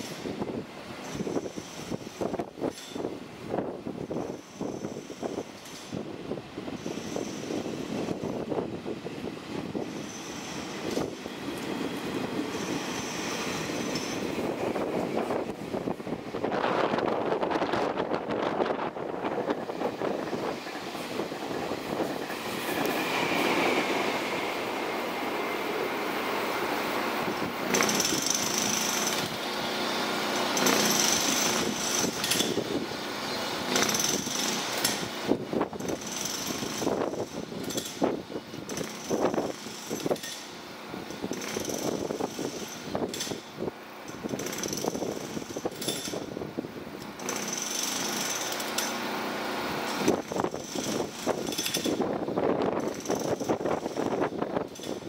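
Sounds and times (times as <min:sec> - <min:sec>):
train wheels clattering over rail joints: 0:00.0 - 0:06.1, 0:09.6 - 0:15.6, 0:26.3 - 0:46.4, 0:47.0 - 0:49.1, 0:49.8 - 0:55.0
train rumble: 0:00.0 - 0:55.0.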